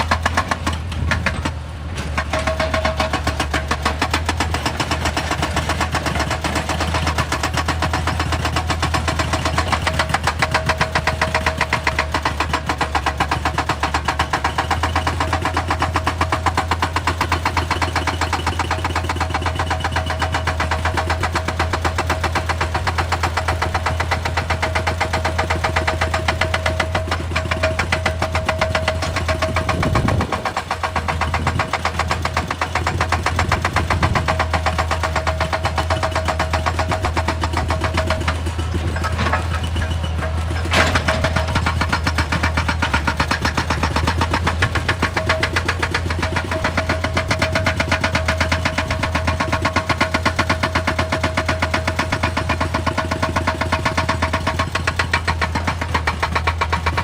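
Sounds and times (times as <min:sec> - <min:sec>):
excavator machinery running: 0:00.0 - 0:57.0.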